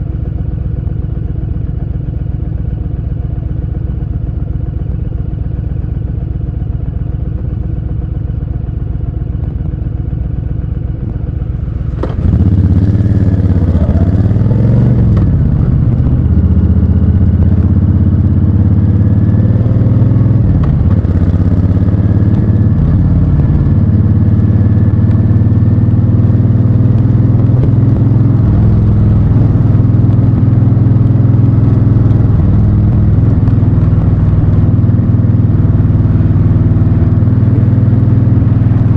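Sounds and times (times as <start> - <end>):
motorcycle engine revving: 11.0 - 38.9.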